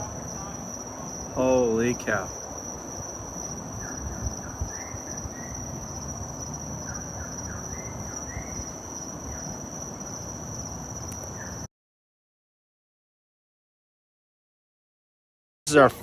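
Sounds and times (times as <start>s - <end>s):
low rumbling hiss: 0.0s - 10.6s
crickets trilling: 0.0s - 11.7s
short insect chirps: 0.0s - 11.7s.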